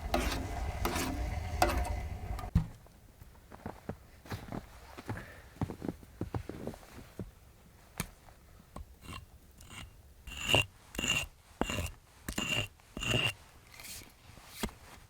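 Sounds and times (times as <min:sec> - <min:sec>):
hand saw cutting wood: 0:00.0 - 0:02.5, 0:09.6 - 0:14.0.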